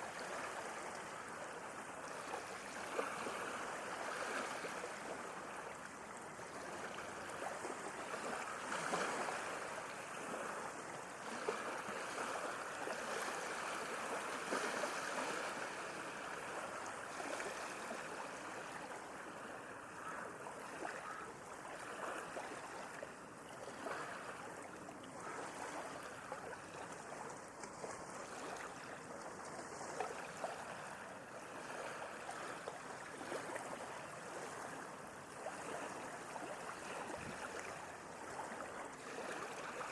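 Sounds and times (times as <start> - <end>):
small water splashes: 0.0 - 39.9
sea waves rushing: 6.4 - 21.2.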